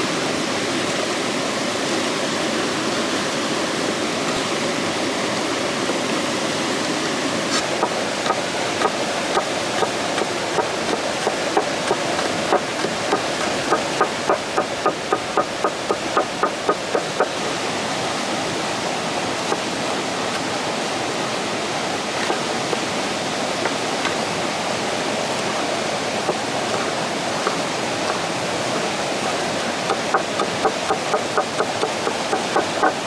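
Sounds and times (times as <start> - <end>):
flowing water rushing: 0.0 - 33.0
quick rhythmic knocks: 7.6 - 17.5, 25.4 - 33.0.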